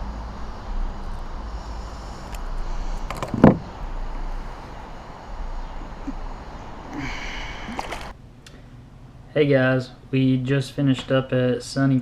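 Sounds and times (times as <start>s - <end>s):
steady low rumble: 0.0s - 10.8s
loud thump: 3.0s - 4.4s.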